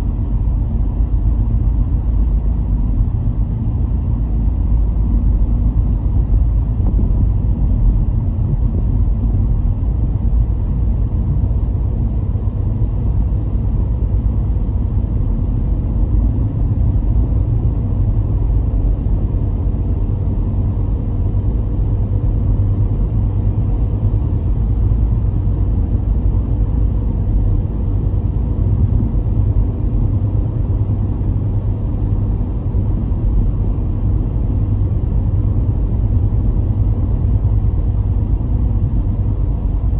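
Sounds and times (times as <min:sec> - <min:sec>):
moving car rumble: 0:00.0 - 0:39.9.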